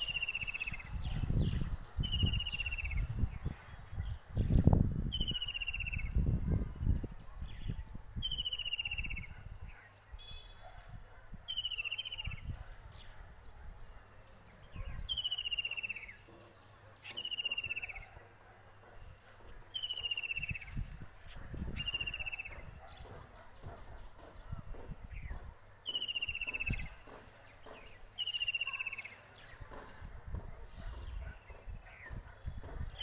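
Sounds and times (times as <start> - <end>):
low wind rumble on microphone: 0.0 - 9.8, 12.2 - 13.9, 20.3 - 25.6, 29.6 - 33.0.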